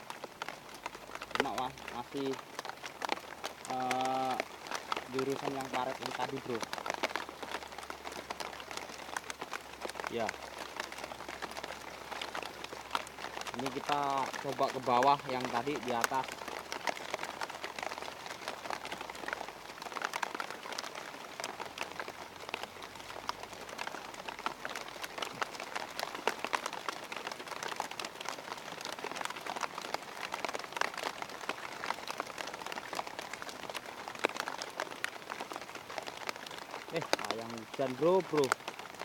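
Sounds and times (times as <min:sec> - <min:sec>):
rain falling: 0:00.0 - 0:39.0.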